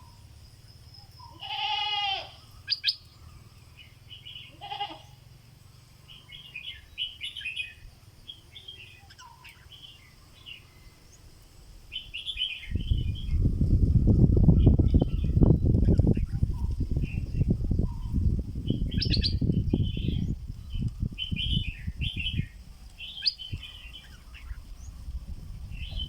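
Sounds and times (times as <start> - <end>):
bird chirping in bursts: 0.0 - 11.3, 11.9 - 26.0
bird wavering calls: 1.2 - 5.2, 6.1 - 9.9.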